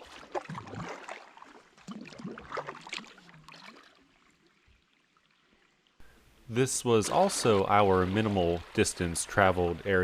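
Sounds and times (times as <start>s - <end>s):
paddle splashing in water: 0.0s - 5.4s, 6.7s - 10.0s
water gurgling and dripping: 0.0s - 5.7s.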